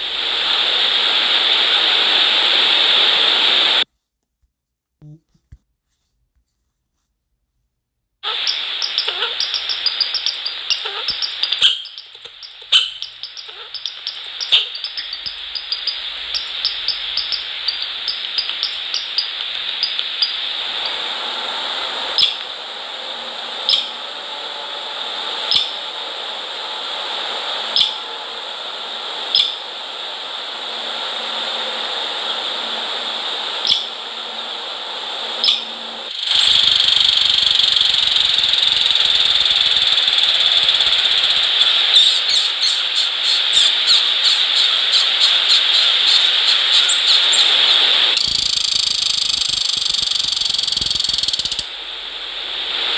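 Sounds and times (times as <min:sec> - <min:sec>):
outdoor hiss: 0:00.0 - 0:03.9, 0:08.2 - 0:52.9
small birds chirping: 0:08.4 - 0:21.0, 0:35.4 - 0:47.6.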